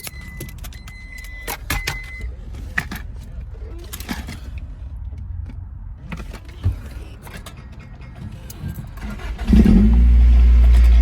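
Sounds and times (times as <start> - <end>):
keys rattling: 0.0 - 4.7, 6.1 - 9.3
car engine starting and running: 0.0 - 11.0.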